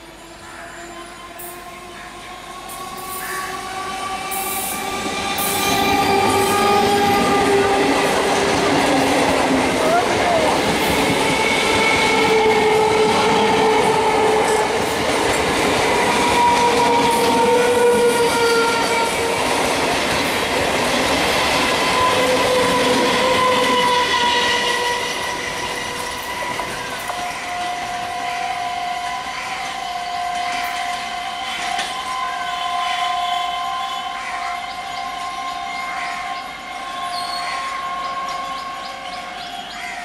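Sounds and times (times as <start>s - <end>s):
train clattering over rail joints: 4.9s - 24.1s
long squealing tones: 21.4s - 34.2s.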